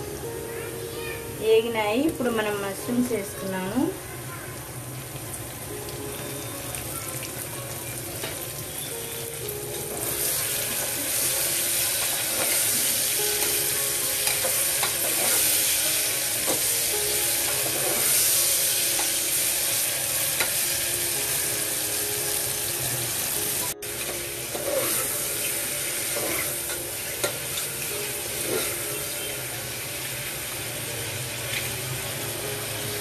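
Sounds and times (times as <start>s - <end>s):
vegetables sizzling in hot oil: 1.0s - 33.0s.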